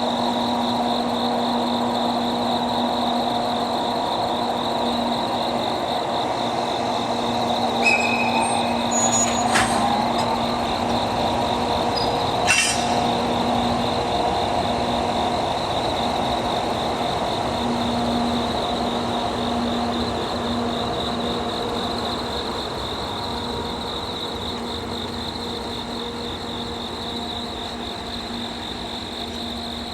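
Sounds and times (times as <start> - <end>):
locomotive engine humming: 0.0 - 22.6
insect trill: 0.0 - 29.9
sharp metallic clanks: 7.8 - 10.6, 12.0 - 13.4.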